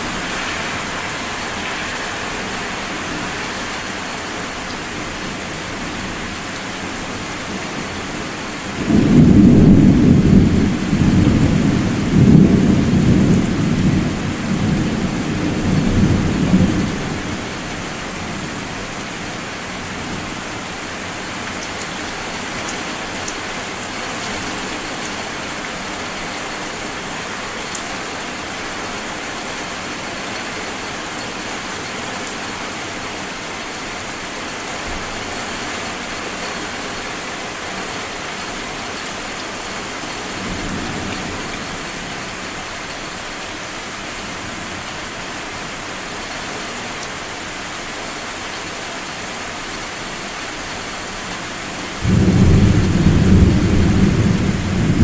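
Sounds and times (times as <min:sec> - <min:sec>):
steady rain falling: 0:00.0 - 0:55.0
low thunder rumble: 0:08.8 - 0:17.3, 0:52.0 - 0:55.0.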